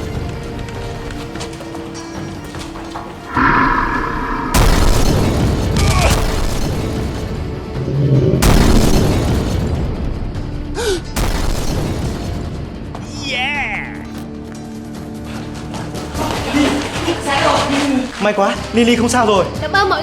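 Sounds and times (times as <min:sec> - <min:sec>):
background music: 0:00.0 - 0:20.0
rumbling explosion booms: 0:03.4 - 0:10.3.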